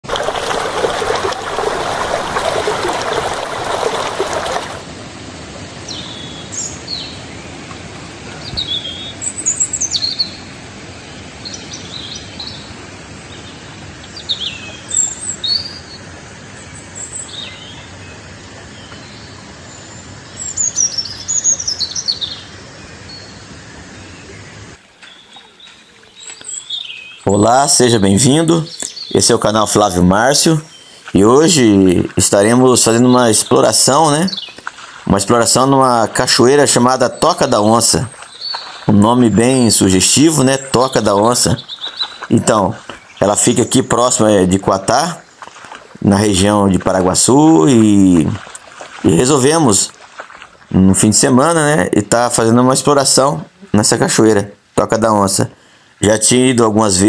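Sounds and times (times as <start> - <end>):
birds chirping: 0.0 - 4.9, 5.9 - 57.0
broad rushing noise: 0.0 - 5.7
background hiss: 0.1 - 57.0.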